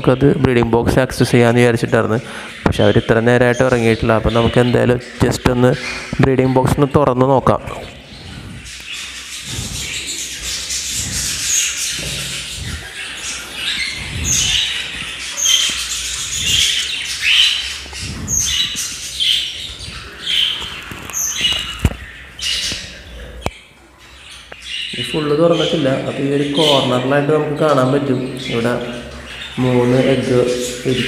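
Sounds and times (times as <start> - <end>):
cockatiel squawking: 8.1 - 22.8.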